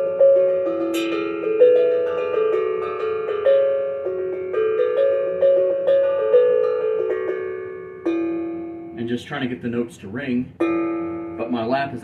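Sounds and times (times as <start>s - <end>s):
steel tongue drum melody: 0.0s - 9.6s, 10.2s - 12.0s
man talking: 9.0s - 10.6s, 11.4s - 12.0s.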